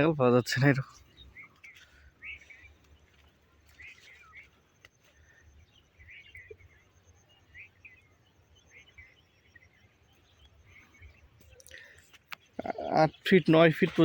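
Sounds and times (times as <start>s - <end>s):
faint bird chirps: 0.0s - 14.0s.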